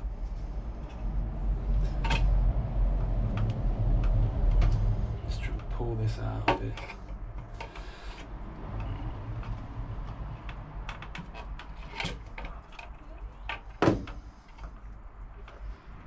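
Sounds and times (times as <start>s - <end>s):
electrical cable clicking and rubbing: 0.7s - 16.0s.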